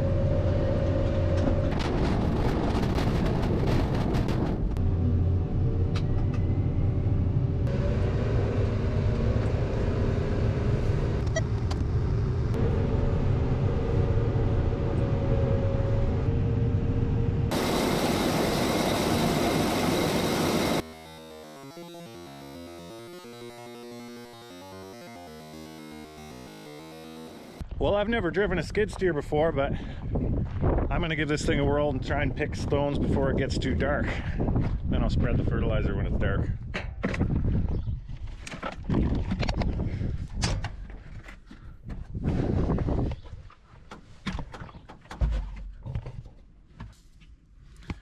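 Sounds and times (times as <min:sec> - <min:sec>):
diesel engine running: 0:00.0 - 0:21.0, 0:25.6 - 0:27.6.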